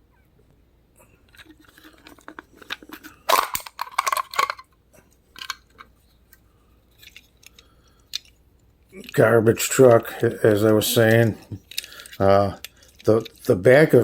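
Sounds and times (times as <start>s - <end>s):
plastic packaging crinkling: 1.3s - 4.6s, 9.0s - 13.9s.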